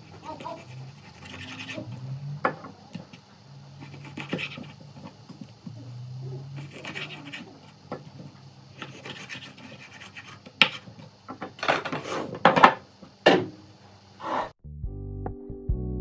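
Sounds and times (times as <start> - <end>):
blade scraping potato skin: 0.0 - 2.2, 3.8 - 5.6, 6.4 - 11.1.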